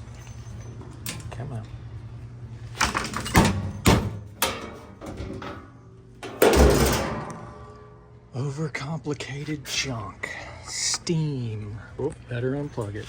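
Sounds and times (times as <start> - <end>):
ringing metal rattle: 3.2 - 8.0
metal bang with low thud: 6.2 - 7.7.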